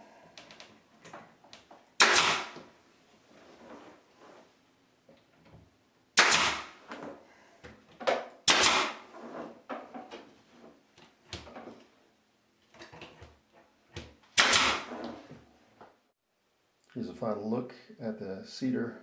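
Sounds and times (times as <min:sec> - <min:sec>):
nail gun firing: 0:02.0 - 0:02.7, 0:06.2 - 0:06.8, 0:08.4 - 0:09.0, 0:14.4 - 0:15.0.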